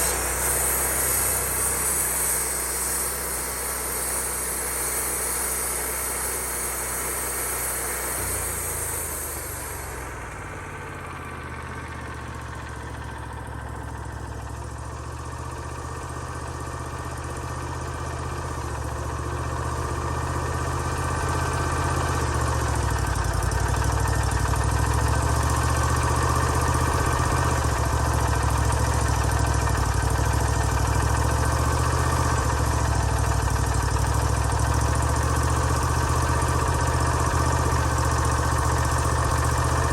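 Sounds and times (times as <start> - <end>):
high hiss: 0.0 - 10.7
sawmill engine running: 0.0 - 39.9.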